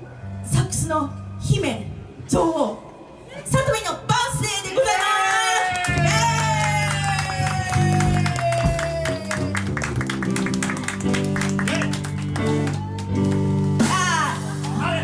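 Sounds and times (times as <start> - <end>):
band playing strummed guitar: 5.9 - 15.0.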